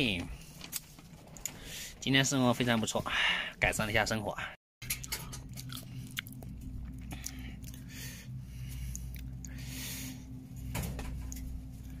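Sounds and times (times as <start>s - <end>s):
steady low hum: 0.0s - 12.0s
chewing: 4.9s - 7.9s, 8.9s - 9.6s.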